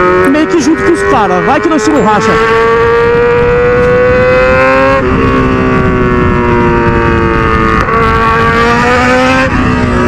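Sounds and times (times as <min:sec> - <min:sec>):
motorcycle engine accelerating hard: 0:00.0 - 0:10.0.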